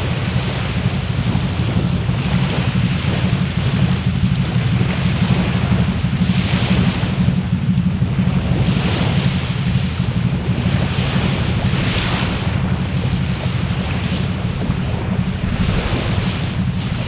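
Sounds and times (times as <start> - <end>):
wind rumbling on microphone: 0.0 - 17.0
thin high whine: 10.5 - 17.0
bonfire burning: 12.5 - 17.0.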